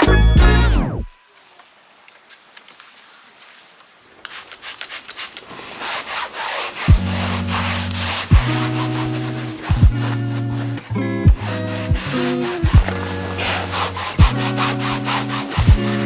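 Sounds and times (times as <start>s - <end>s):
music with bass beat: 0.0s - 1.1s, 6.9s - 8.9s, 9.7s - 10.4s, 11.2s - 16.0s
hand scrubbing a surface: 2.9s - 10.8s, 11.4s - 16.0s.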